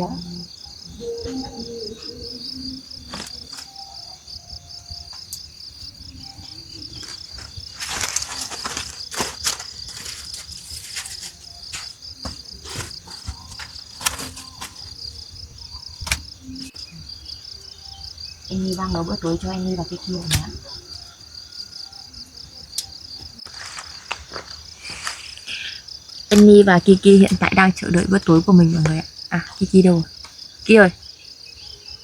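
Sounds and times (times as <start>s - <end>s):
crickets chirping: 0.0s - 32.0s
sharp clicks: 16.0s - 16.8s.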